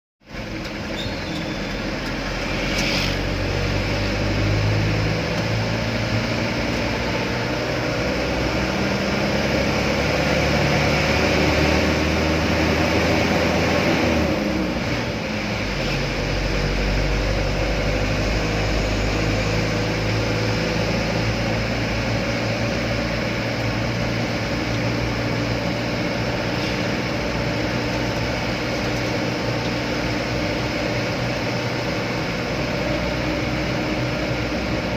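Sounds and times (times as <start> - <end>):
truck engine running: 0.2 - 34.9.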